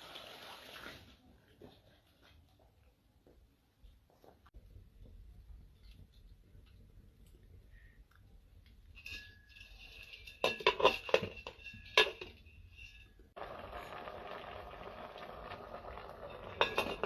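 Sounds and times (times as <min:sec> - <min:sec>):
dishes and glassware clinking: 0:09.0 - 0:13.2, 0:16.4 - 0:17.0.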